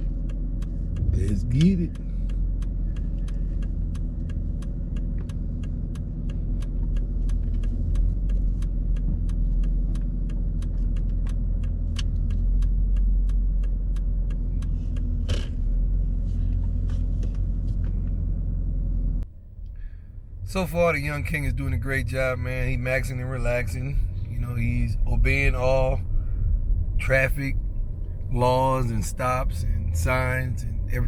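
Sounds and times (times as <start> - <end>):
car engine and road rumble: 0.0 - 31.0
turn signal ticking: 0.0 - 31.0.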